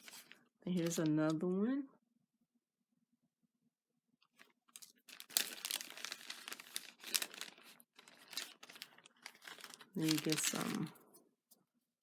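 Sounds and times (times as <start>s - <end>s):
paper packaging crinkling: 0.0s - 1.2s, 4.3s - 11.1s.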